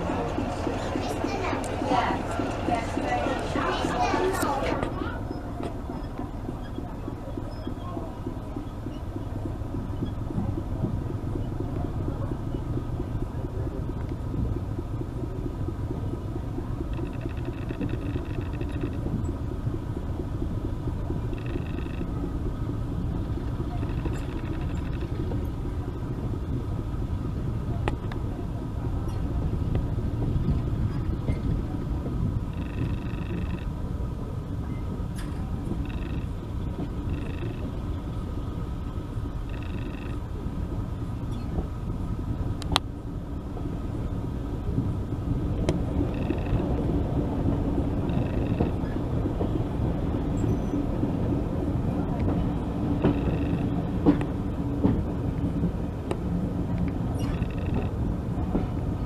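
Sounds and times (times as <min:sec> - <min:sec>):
train rumbling along track: 0:00.0 - 0:59.0
high-pitched wheel squeals: 0:37.0 - 0:37.7, 0:48.0 - 0:49.0, 0:53.0 - 0:53.8.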